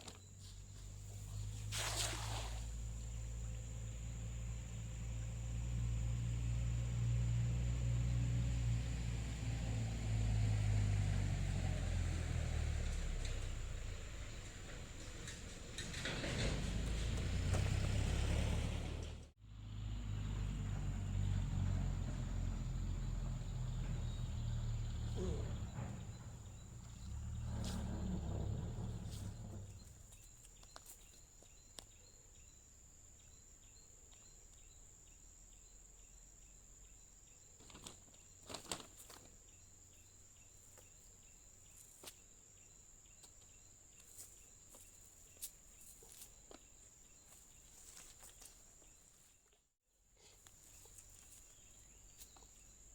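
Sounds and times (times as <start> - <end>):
insects trilling: 22.2 - 49.0
small clicks and rustles: 37.6 - 39.5.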